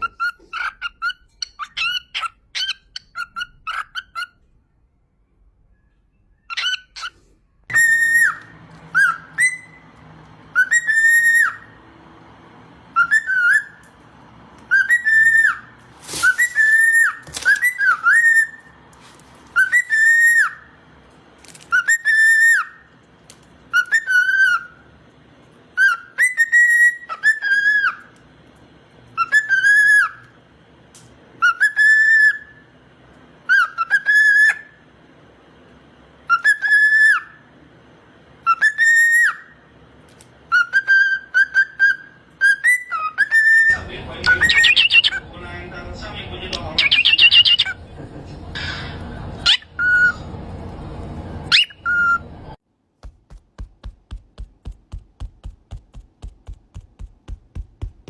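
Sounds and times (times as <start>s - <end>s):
parrot whistling a phrase: 7.7s - 9.8s, 12.9s - 13.8s, 40.5s - 45.2s, 46.8s - 47.8s.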